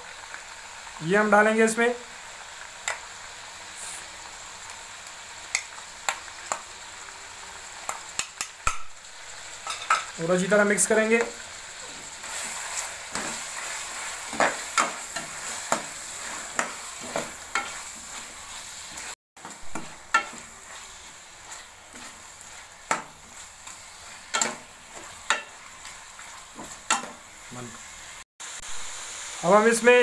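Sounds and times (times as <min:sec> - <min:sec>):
frying hiss: 0:00.0 - 0:30.0
spoon knocking and scraping pan: 0:09.6 - 0:10.2, 0:11.2 - 0:18.4, 0:19.0 - 0:27.2.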